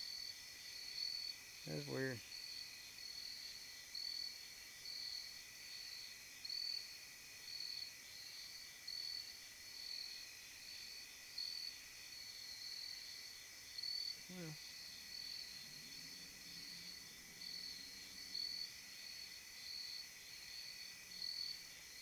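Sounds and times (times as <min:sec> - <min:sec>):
crickets trilling: 0:09.8 - 0:22.0.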